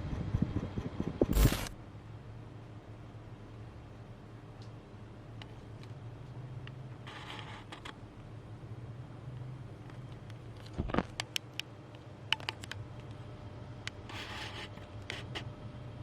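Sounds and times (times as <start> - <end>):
sharp clicks of wobbling fan: 0.0 - 1.8
ceiling fan motor humming: 0.0 - 16.0.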